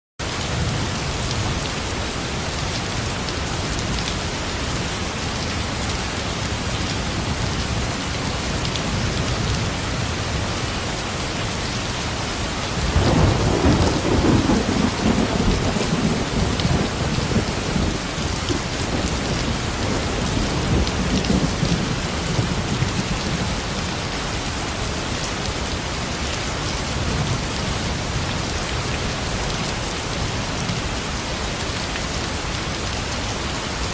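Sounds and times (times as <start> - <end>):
steady rain falling: 0.2 - 33.9
thunder rumbling: 12.8 - 23.9.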